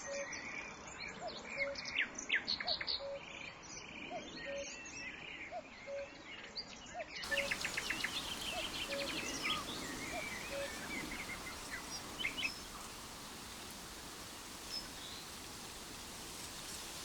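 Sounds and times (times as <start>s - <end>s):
outdoor ambience hiss: 7.2s - 17.0s
songbirds chirping and trilling: 7.2s - 17.0s.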